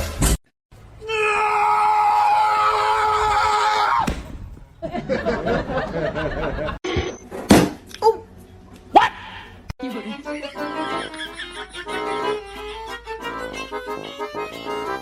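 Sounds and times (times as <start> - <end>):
long high-pitched scream: 1.0 - 4.0.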